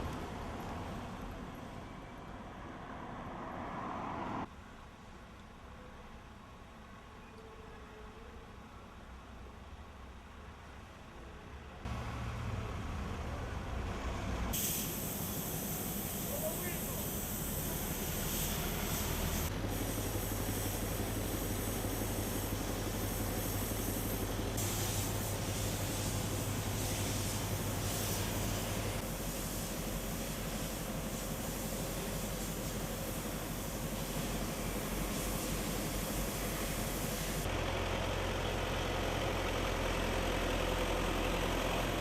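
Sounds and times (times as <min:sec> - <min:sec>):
broad hiss: 0:14.5 - 0:37.5
vehicle engine running: 0:35.6 - 0:42.0.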